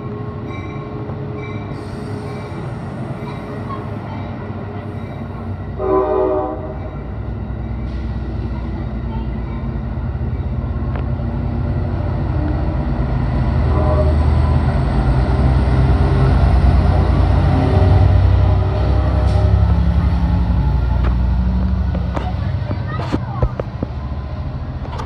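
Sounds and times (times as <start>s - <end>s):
passenger train rumbling: 0.0s - 25.0s
train horn blast: 5.8s - 6.9s, 13.6s - 14.5s.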